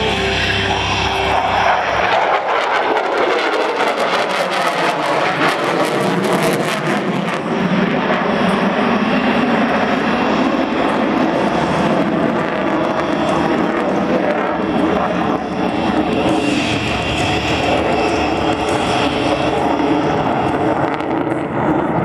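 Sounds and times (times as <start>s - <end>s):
music: 0.0s - 1.6s
jet engines roaring: 0.0s - 22.0s.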